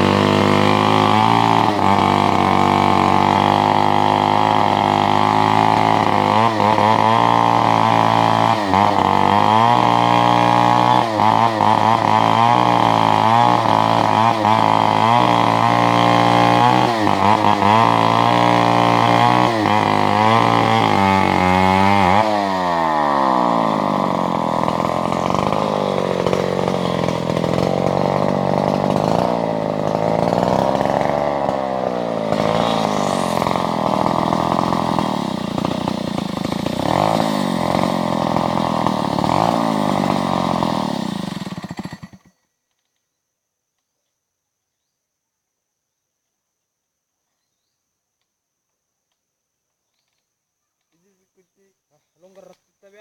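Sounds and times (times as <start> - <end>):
chainsaw cutting wood: 0.0 - 43.0.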